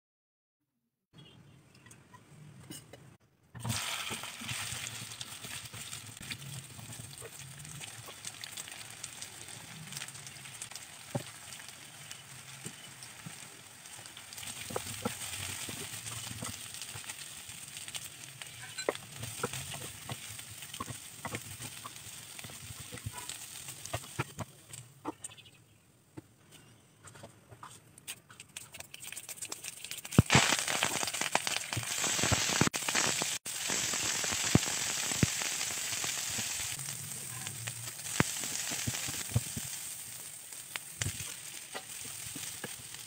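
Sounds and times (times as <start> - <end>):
taro frying in oil: 3.4 - 25.4, 28.0 - 43.0
spatula clicking and scraping pan: 17.8 - 24.8.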